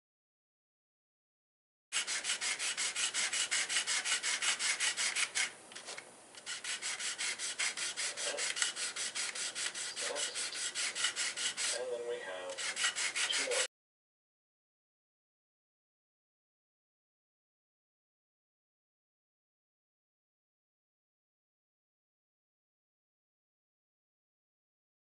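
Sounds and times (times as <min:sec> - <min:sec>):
abrasive hand tool rasping: 0:01.9 - 0:05.6, 0:06.4 - 0:13.7.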